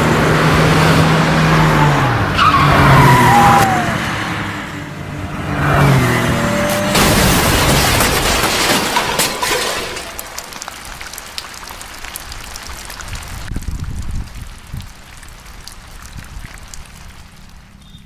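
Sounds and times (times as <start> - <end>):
water splashing and pouring: 6.8 - 17.8
water dripping: 10.0 - 18.0.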